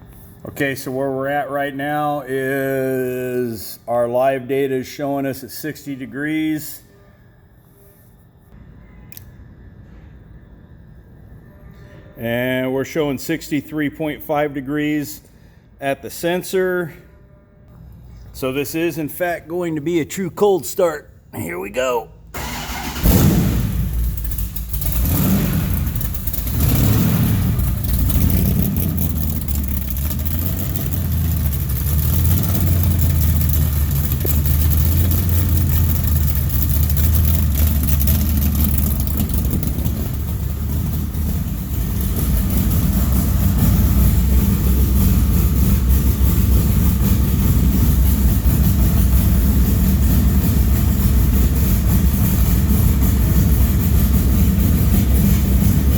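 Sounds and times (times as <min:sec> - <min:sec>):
engine starting and idling: 0:22.3 - 0:55.9.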